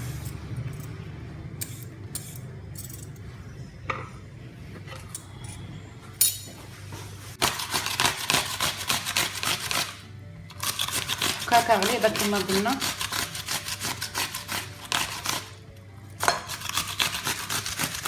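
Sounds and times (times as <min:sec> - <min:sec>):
cucumber scraping on grater: 0:07.4 - 0:15.6, 0:16.3 - 0:18.0.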